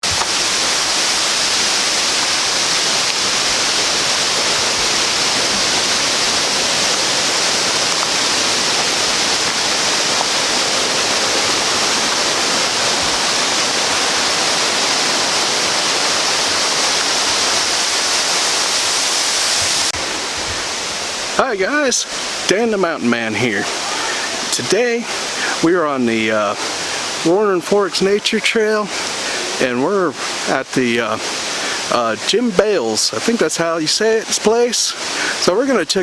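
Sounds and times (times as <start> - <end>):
mountain creek rushing: 0.0 - 36.0.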